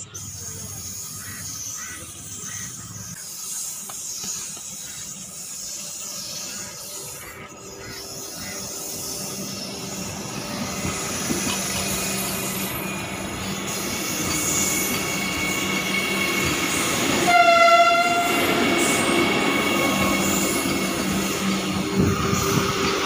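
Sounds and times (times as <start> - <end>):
faint train whine: 0.0 - 23.0
train rolling noise: 3.0 - 23.0
train horn: 15.8 - 21.4.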